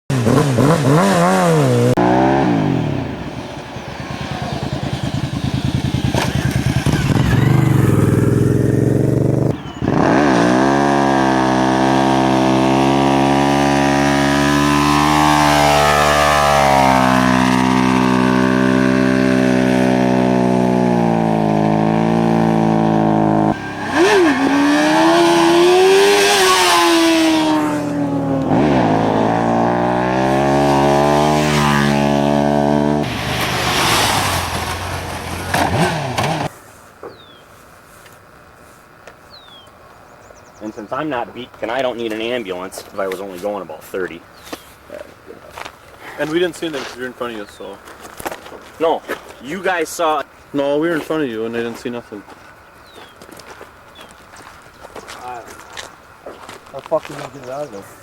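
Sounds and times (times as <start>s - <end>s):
motorcycle engine revving: 0.1s - 36.5s.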